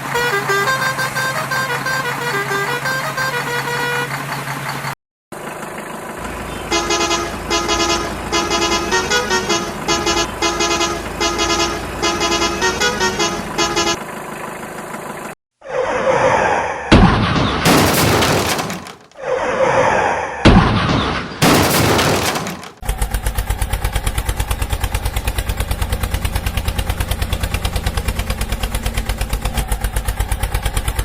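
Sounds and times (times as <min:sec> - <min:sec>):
vehicle horn tooting a tune: 0:00.0 - 0:04.2, 0:06.6 - 0:14.0
low engine hum: 0:00.0 - 0:15.4.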